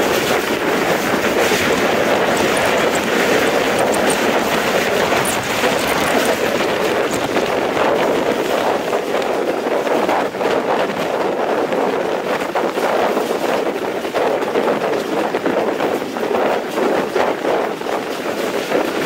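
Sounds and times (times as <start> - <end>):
moving train rushing: 0.0 - 9.6
wind buffeting microphone: 0.0 - 19.0.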